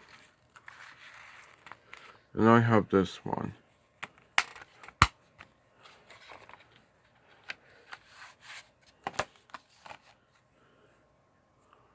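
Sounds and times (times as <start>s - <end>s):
paper rustling: 0.0s - 2.2s.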